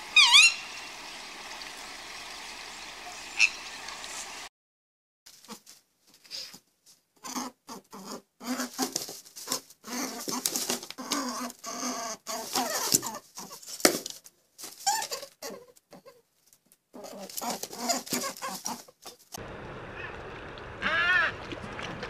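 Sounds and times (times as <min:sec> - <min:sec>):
short pitched animal calls: 0:00.0 - 0:00.9, 0:20.8 - 0:21.4.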